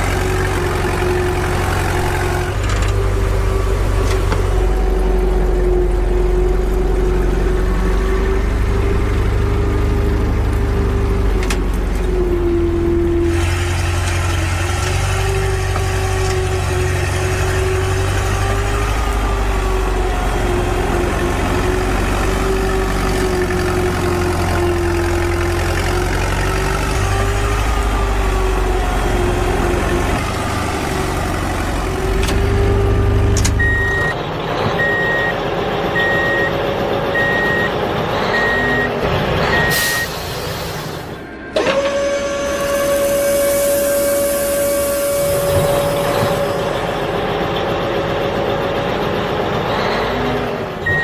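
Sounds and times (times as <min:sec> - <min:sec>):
vehicle reversing alarm beeping: 0:32.7 - 0:34.2, 0:34.8 - 0:40.4.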